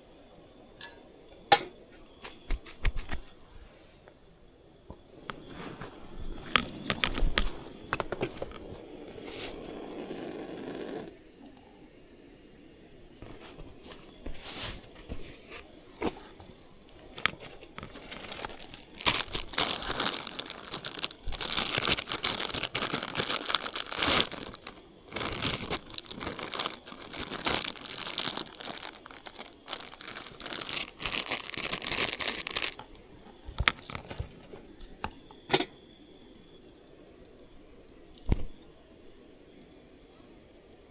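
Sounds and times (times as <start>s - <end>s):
handling noises: 4.9s - 9.6s, 13.2s - 35.8s, 38.2s - 38.7s
crinkly material crumpled by hand: 5.4s - 9.6s, 13.2s - 35.0s.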